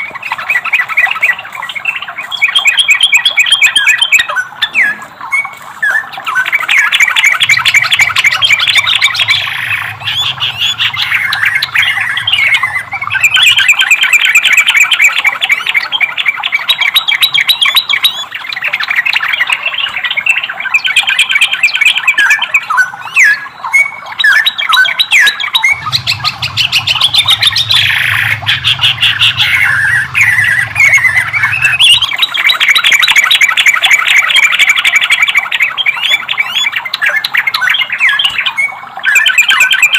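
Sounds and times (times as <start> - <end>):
bulbul singing chattering notes: 4.7 - 15.9, 25.5 - 33.6
faint low hum: 7.3 - 14.4, 25.7 - 32.6.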